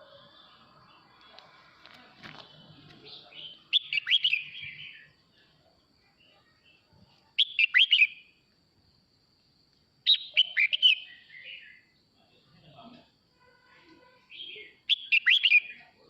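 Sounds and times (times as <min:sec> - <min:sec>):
bird warbling song: 0:02.4 - 0:05.2, 0:07.4 - 0:08.3, 0:10.1 - 0:11.9, 0:14.3 - 0:15.9.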